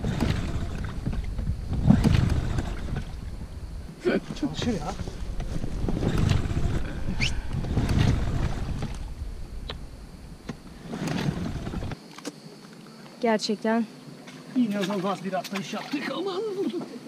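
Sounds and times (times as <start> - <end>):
wind rushing on microphone: 0.0 - 12.0
water splashing: 14.2 - 16.8.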